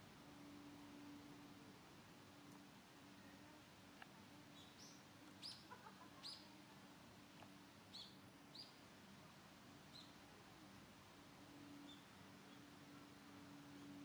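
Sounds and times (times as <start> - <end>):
small birds chirping: 4.5 - 6.5, 7.9 - 8.8.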